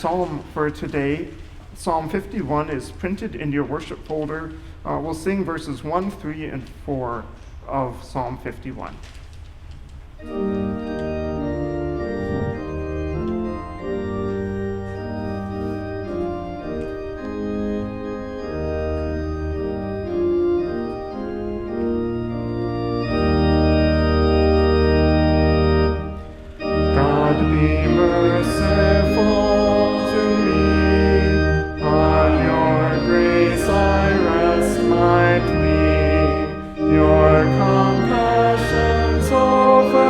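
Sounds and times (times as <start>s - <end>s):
congregation singing: 10.2s - 40.0s
organ playing chords: 10.2s - 40.0s.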